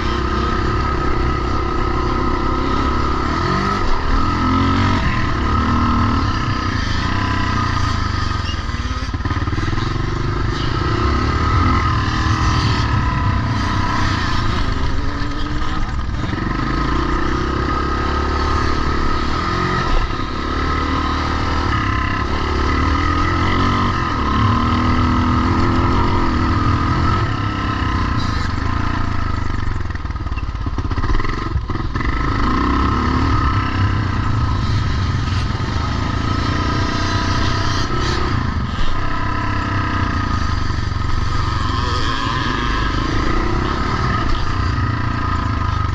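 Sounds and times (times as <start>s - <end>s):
motorcycle engines revving: 0.0s - 45.9s.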